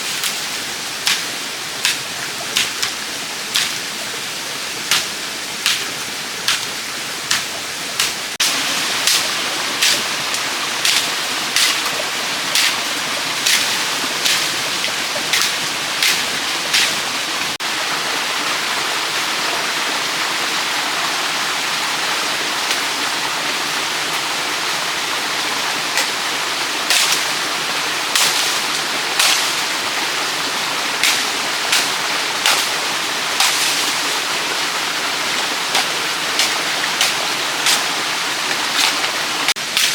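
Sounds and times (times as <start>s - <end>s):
hand tool striking bamboo: 1.0s - 3.8s, 4.9s - 6.7s, 7.3s - 17.0s, 26.9s - 27.4s, 28.1s - 29.8s, 31.0s - 34.2s, 35.3s - 39.9s.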